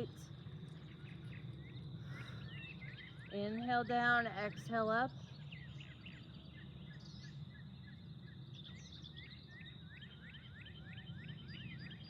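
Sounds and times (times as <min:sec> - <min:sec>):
low outdoor rumble: 0:00.0 - 0:09.4
bird song of down-slurred notes: 0:00.0 - 0:12.0
birds chirping: 0:00.0 - 0:12.0.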